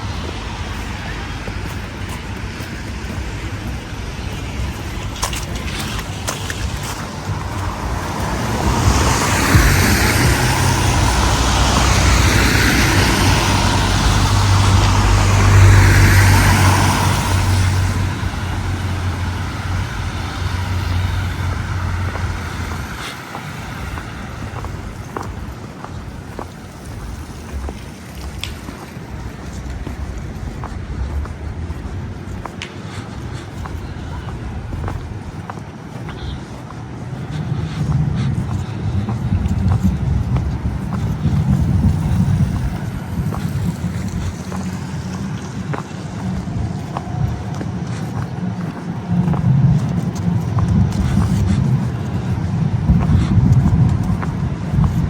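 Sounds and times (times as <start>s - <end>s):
background traffic noise: 0.0s - 55.0s
vehicle passing close by: 4.4s - 25.7s.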